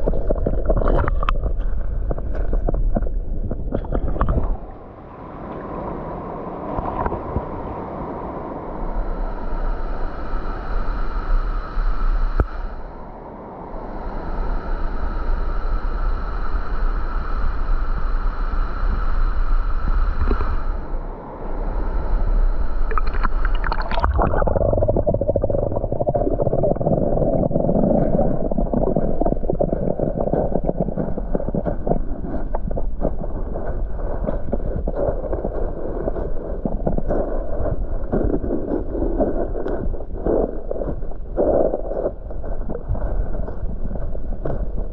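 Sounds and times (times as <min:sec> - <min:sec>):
small crackles: 0:00.0 - 0:04.6, 0:22.9 - 0:44.9
faint steady tones: 0:04.2 - 0:44.9.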